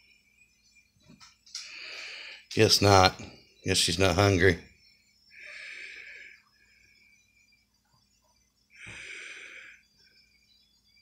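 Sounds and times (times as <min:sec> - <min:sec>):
heavy breaths through nose: 0:01.6 - 0:02.5, 0:05.3 - 0:07.2, 0:08.7 - 0:10.3.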